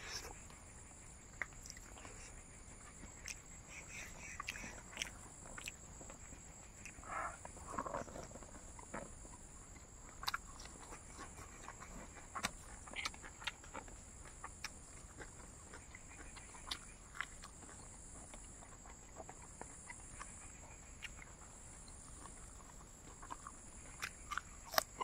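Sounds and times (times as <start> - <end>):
person chewing: 1.3 - 25.0.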